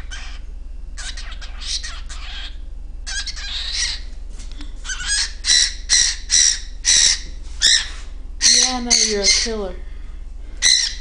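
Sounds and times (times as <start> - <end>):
cockatiel chirping: 0.0 - 0.4, 1.0 - 4.1, 4.8 - 9.5, 10.6 - 11.0
cockatiel screeching: 0.0 - 0.4, 1.0 - 4.1, 4.8 - 9.5, 10.6 - 11.0.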